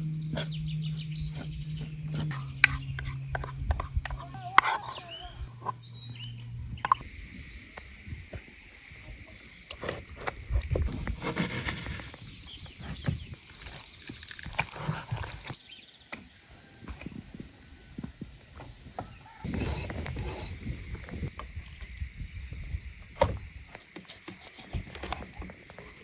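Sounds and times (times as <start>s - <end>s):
birds chirping: 0.0s - 7.1s.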